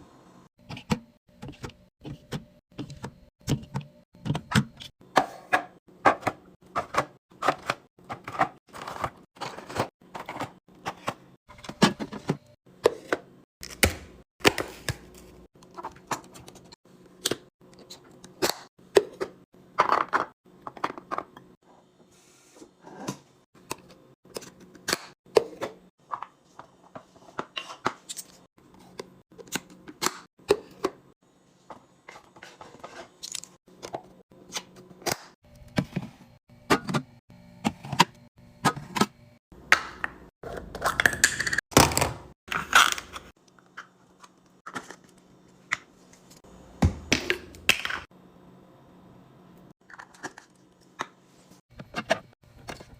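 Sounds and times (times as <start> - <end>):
food packaging clicking and crinkling: 49.8 - 51.1.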